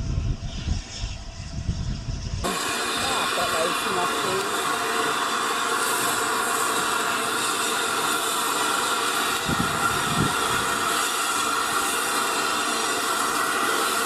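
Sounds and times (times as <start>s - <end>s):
steam hissing: 0.5s - 14.0s.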